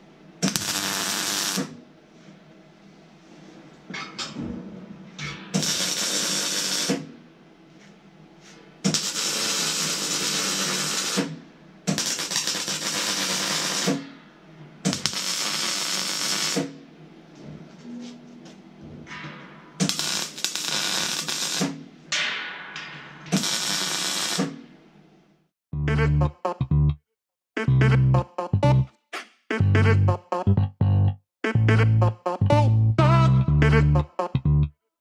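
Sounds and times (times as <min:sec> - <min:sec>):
welder crackling hiss: 0:00.5 - 0:01.7, 0:05.6 - 0:07.0, 0:08.9 - 0:11.3, 0:12.0 - 0:14.0, 0:14.9 - 0:16.7, 0:19.8 - 0:21.8, 0:23.4 - 0:24.6.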